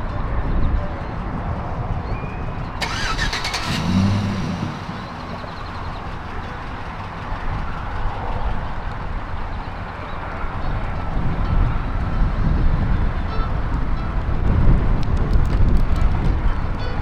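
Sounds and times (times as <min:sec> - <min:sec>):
running vehicles: 0:00.0 - 0:17.0
car engine starting: 0:02.5 - 0:13.1.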